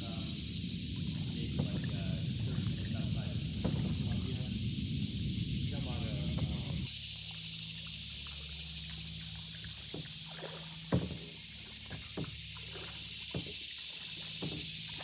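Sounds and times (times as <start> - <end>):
paddles splashing in water: 0.0 - 15.0
steady background hiss: 0.0 - 15.0
paddle knocks: 1.0 - 4.5, 9.8 - 15.0.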